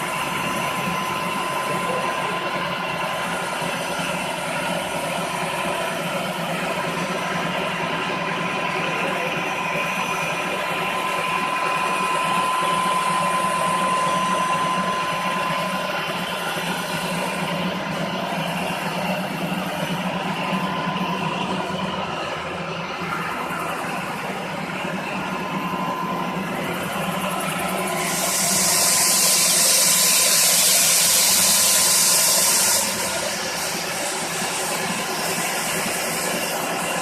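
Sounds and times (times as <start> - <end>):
floor grinding machine drone: 0.0 - 37.0
high whine: 0.0 - 37.0.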